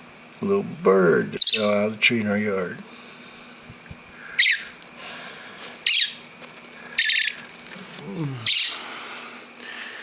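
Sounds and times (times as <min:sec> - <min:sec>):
baby bird squawking: 0:01.4 - 0:01.8, 0:04.3 - 0:04.8, 0:05.8 - 0:06.3, 0:06.9 - 0:07.5, 0:08.4 - 0:08.9.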